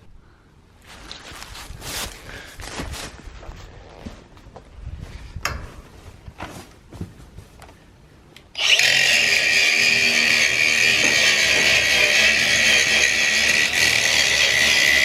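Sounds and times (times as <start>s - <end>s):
power tool running: 8.6s - 15.0s.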